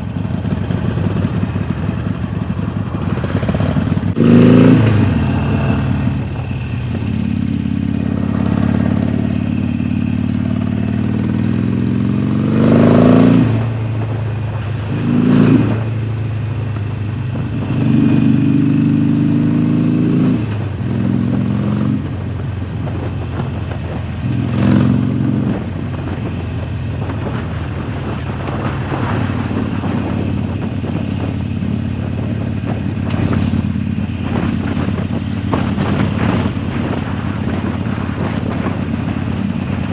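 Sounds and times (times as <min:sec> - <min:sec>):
motorcycle engine revving while riding: 0:00.0 - 0:39.9.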